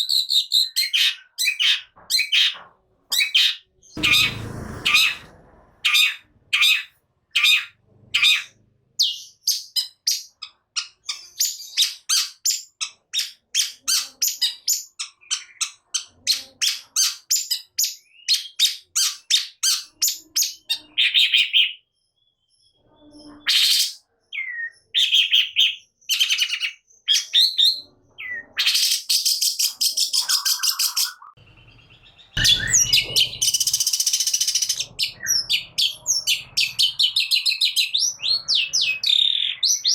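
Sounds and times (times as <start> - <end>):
bird singing rapid high notes: 3.9 - 6.9, 30.4 - 39.9
harsh scratchy rasping bird call: 3.9 - 8.5
bird whistled calls: 32.4 - 39.9.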